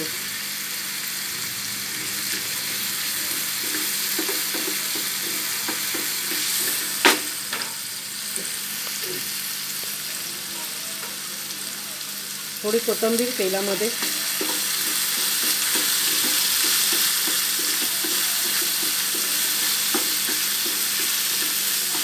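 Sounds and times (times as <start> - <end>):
vegetables sizzling in hot oil: 0.0 - 22.0
wooden spoon scraping a pan: 2.0 - 7.0, 13.9 - 22.0.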